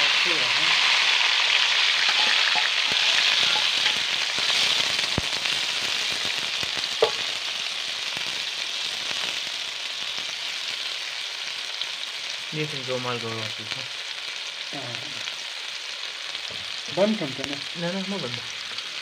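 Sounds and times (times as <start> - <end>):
tomatoes sizzling in oil: 0.0 - 19.0
ladle scraping pan: 2.0 - 4.0.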